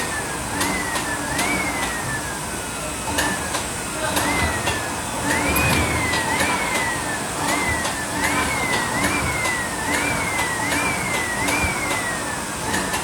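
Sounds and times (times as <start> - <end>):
machine motor whine: 0.0 - 13.0.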